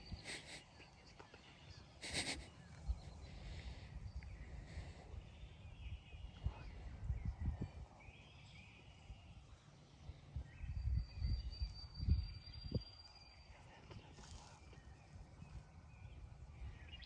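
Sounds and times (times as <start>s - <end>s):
faint animal calls: 0.0s - 3.8s
wind rumbling on microphone: 0.0s - 17.0s.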